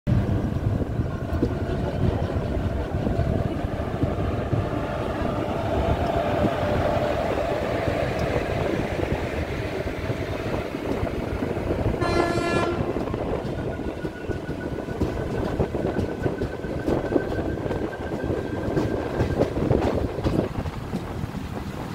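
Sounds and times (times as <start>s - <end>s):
train wheels rumbling on rails: 0.1s - 21.9s
train horn blast: 12.0s - 13.0s.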